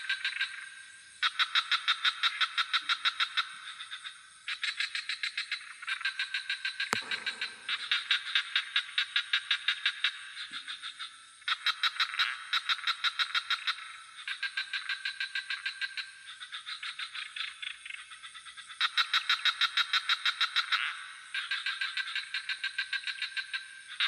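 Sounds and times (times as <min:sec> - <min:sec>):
frogs croaking: 0:00.0 - 0:24.0
high-pitched insect trill: 0:03.0 - 0:09.1.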